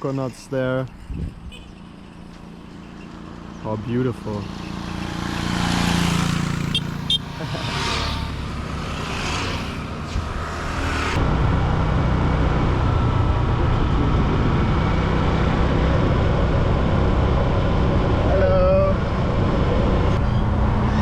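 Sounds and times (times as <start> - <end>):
vehicle engine and wind rumble: 0.0 - 21.0
passing whooshes: 5.1 - 13.6, 19.0 - 21.0.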